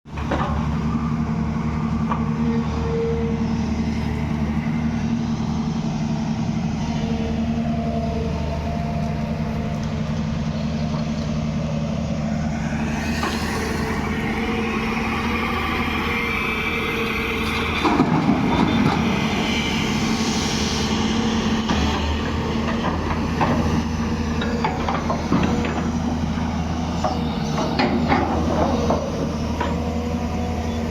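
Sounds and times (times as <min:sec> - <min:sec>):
diesel engine running: 0:00.1 - 0:30.9
wavering whine: 0:11.4 - 0:22.6.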